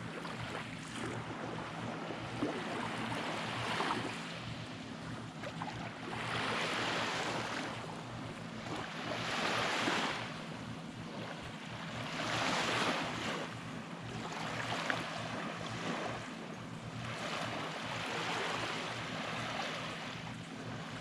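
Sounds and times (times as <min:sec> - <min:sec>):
small waves washing onto beach: 0:00.0 - 0:21.0.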